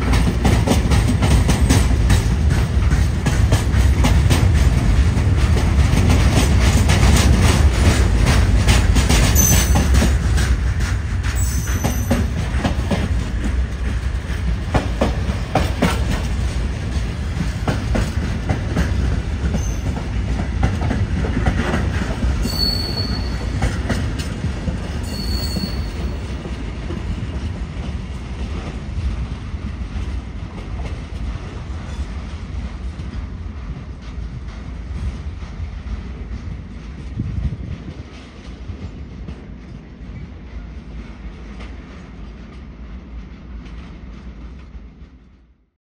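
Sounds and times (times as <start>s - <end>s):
freight train rumbling: 0.0s - 45.7s
high wheel squeals: 11.4s - 12.3s, 22.4s - 23.6s, 25.0s - 26.2s.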